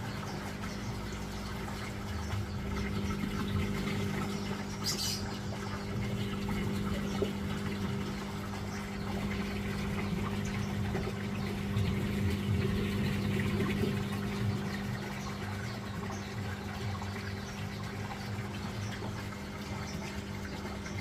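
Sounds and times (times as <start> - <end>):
motor humming: 0.0 - 21.0
running water: 0.0 - 21.0.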